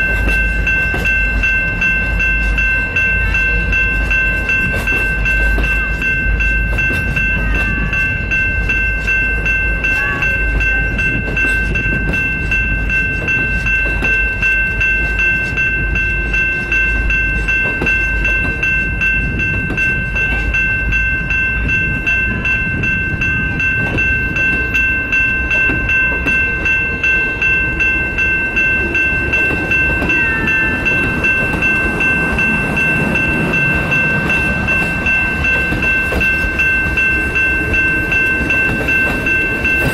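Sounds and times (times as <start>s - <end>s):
diesel locomotive rumble: 0.0s - 39.9s.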